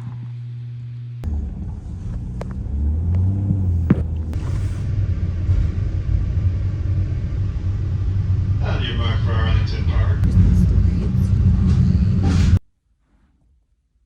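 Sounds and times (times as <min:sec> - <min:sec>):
vehicle rumbling in motion: 0:01.0 - 0:12.6.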